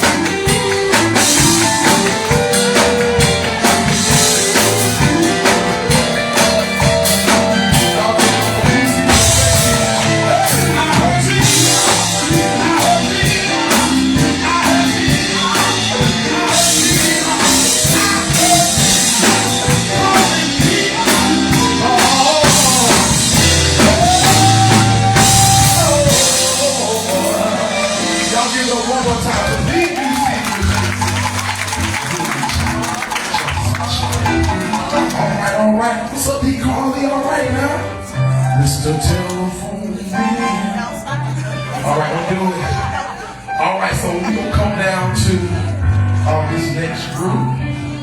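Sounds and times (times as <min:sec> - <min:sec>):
gospel choir singing with band: 0:00.0 - 0:31.1
drum kit beat: 0:00.0 - 0:37.0.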